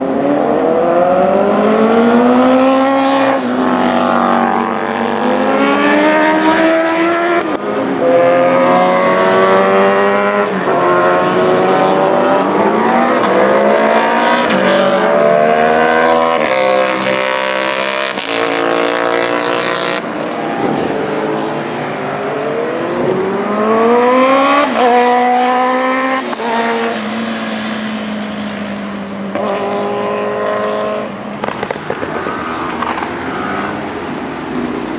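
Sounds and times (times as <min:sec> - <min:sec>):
motorcycle engines revving past: 0:00.0 - 0:34.9.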